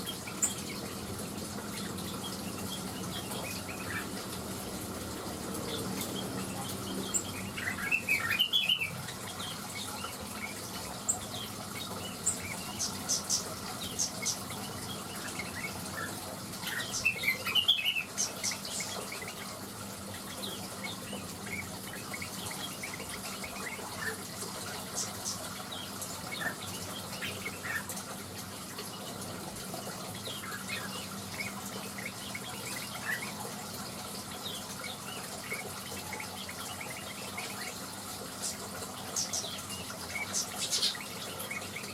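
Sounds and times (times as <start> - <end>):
bird high chirps and twitters: 5.7 - 19.6, 29.8 - 41.9.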